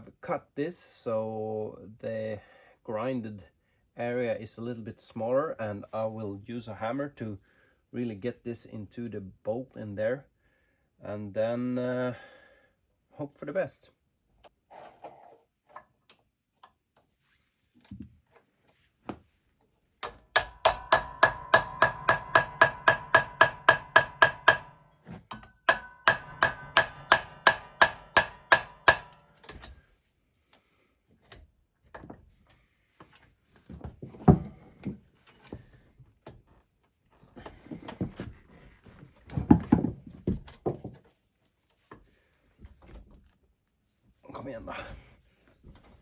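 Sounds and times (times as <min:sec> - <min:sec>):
hammer blows on metal: 0:20.0 - 0:29.4
loud knock: 0:20.4 - 0:29.2.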